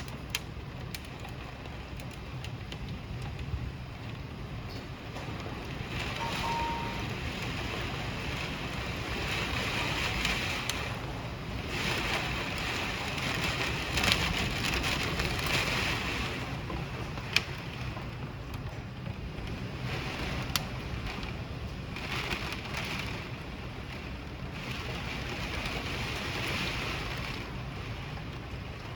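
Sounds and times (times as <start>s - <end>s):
hailstones clicking on hard surfaces: 0.0s - 26.0s
hiss of rain and hail: 0.0s - 28.9s.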